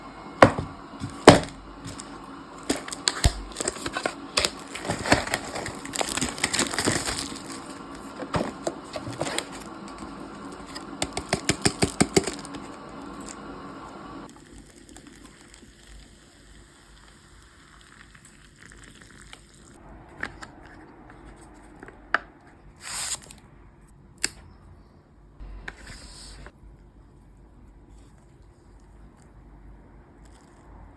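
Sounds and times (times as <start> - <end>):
kitchen clatter and rustling: 2.7 - 10.1.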